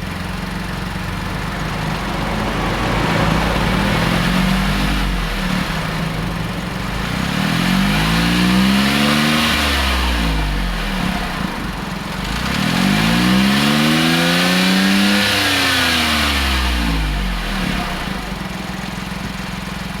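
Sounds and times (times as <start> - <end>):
car engine revving and idling: 0.0 - 20.0.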